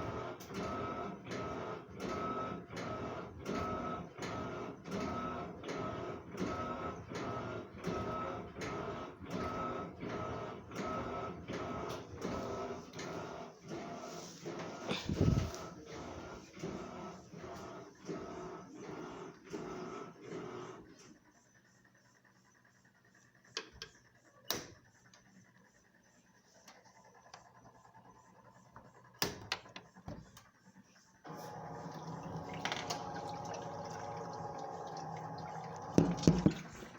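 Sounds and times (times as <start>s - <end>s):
washing machine motor whirring: 0.0s - 36.9s.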